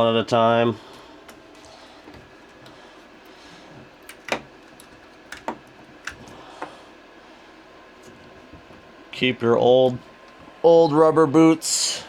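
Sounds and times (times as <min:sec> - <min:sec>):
hands knocking and clicking on printer: 0:04.1 - 0:06.2.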